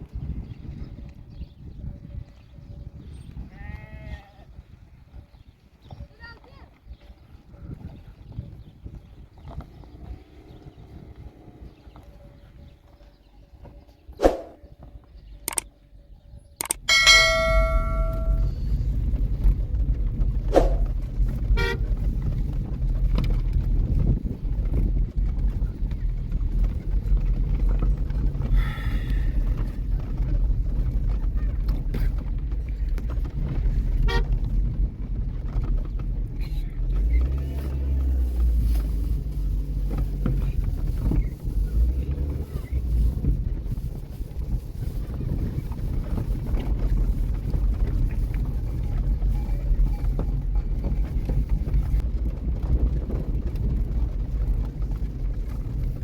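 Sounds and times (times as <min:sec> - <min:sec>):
vehicle rumbling: 0:04.7 - 0:56.0
vehicle horn toot: 0:16.9 - 0:18.6, 0:21.6 - 0:21.9, 0:34.0 - 0:34.3.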